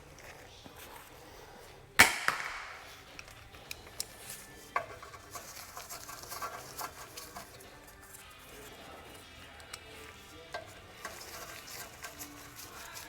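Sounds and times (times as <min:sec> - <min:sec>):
tools clinking and rattling: 0:02.9 - 0:13.0.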